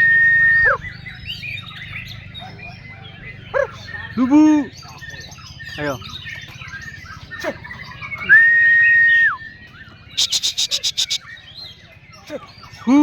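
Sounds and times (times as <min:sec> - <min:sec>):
songbird singing: 0:00.0 - 0:13.0
sharp chattering bird notes: 0:09.9 - 0:13.0
other bird notes: 0:10.2 - 0:11.2.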